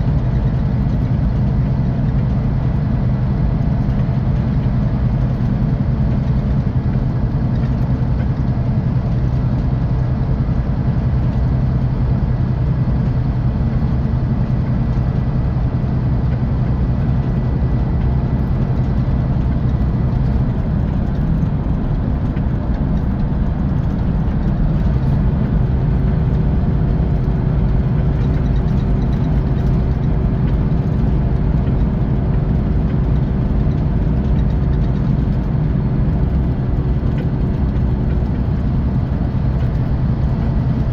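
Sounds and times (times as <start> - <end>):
bus diesel engine drone: 0.0 - 40.9
road noise inside bus: 0.0 - 40.9.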